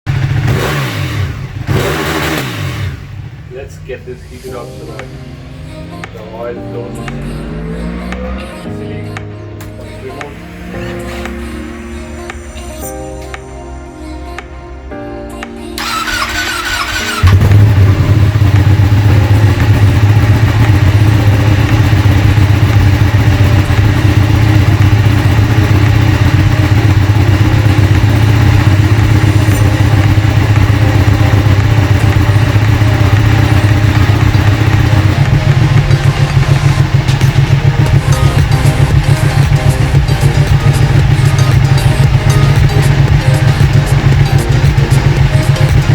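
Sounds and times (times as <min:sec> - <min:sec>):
motorcycle engine idling: 0:00.1 - 0:04.3, 0:15.8 - 0:45.9
starter motor whining: 0:15.8 - 0:17.9.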